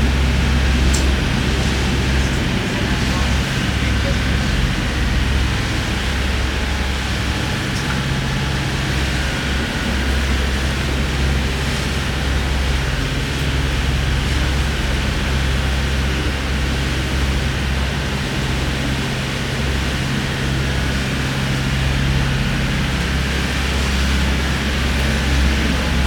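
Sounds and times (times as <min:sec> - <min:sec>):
boat engine droning: 0:00.0 - 0:26.0
water rushing: 0:21.0 - 0:26.0.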